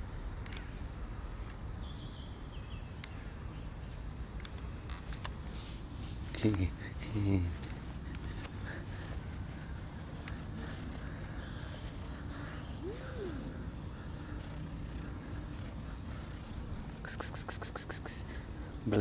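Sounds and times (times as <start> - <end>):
small bird chirping: 6.3 - 19.0
rapid rustle: 7.5 - 18.2.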